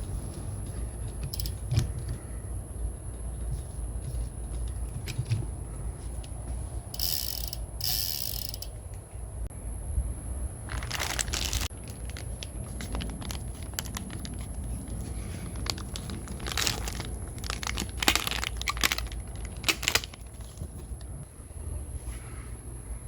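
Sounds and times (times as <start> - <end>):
steady low hum: 0.0 - 23.0
material crinkling and rustling: 10.7 - 21.2.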